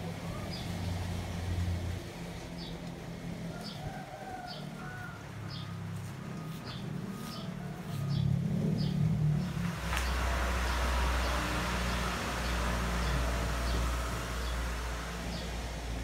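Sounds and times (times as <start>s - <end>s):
birds chirping: 3.5s - 16.0s.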